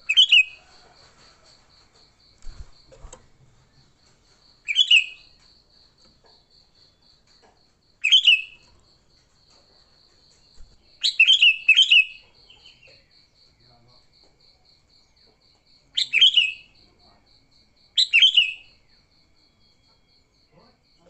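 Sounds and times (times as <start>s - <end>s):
faint high insect-like pulsing: 0.0s - 21.0s
bulbul calls: 4.7s - 5.3s, 8.0s - 8.6s.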